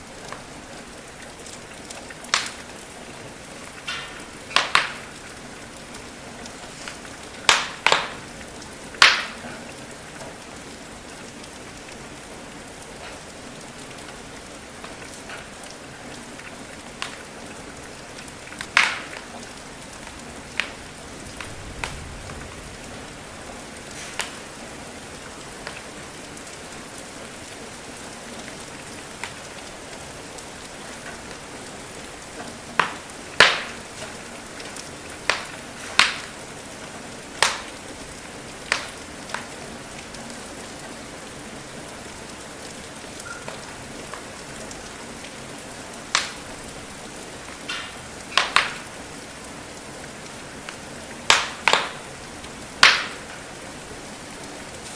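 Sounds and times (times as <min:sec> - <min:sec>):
crackling wood fire: 0:00.0 - 0:54.9
rain hiss: 0:00.0 - 0:54.9.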